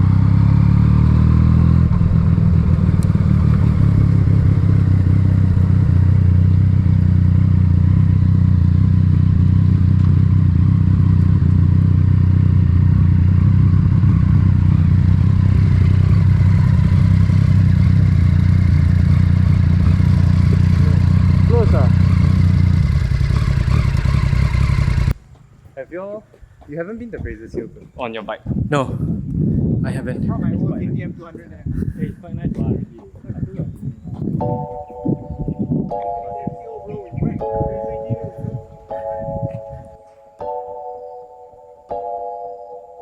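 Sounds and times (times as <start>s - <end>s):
motorcycle engine running: 0.0s - 25.5s.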